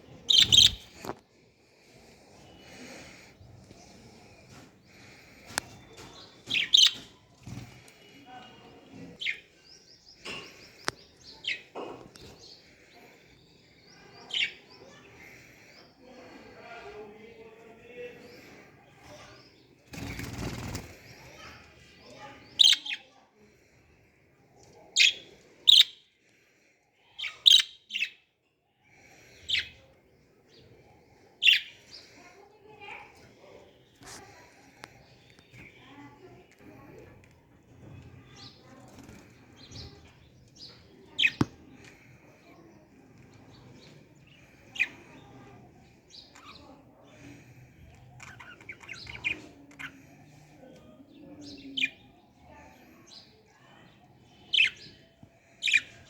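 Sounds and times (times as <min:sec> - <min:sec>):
birds chirping: 0:00.0 - 0:01.2, 0:01.8 - 0:23.0, 0:23.7 - 0:26.5, 0:27.1 - 0:28.2, 0:29.0 - 0:56.0
parrots chirping: 0:00.2 - 0:01.1, 0:06.5 - 0:07.1, 0:25.0 - 0:26.0, 0:27.3 - 0:28.1.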